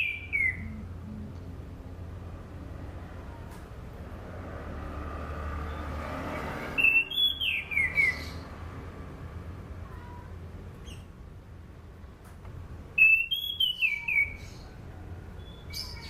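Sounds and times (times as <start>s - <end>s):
thrush singing whistled notes: 0.0s - 1.2s, 6.8s - 8.4s, 13.0s - 14.6s
steady low hum: 0.0s - 4.2s.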